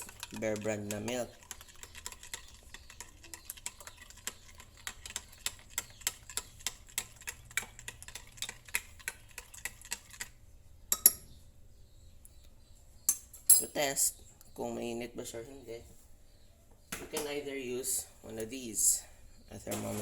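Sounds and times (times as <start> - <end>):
spoon stirring and clicking in container: 0.0 - 11.2
spoon tapping: 10.9 - 11.2.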